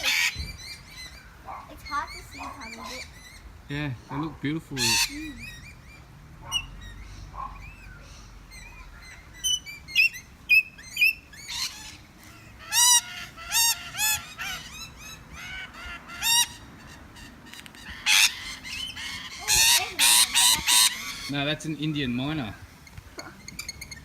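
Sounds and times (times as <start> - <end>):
birds chirping: 0.0 - 24.0
birds squawking harshly: 0.0 - 24.0.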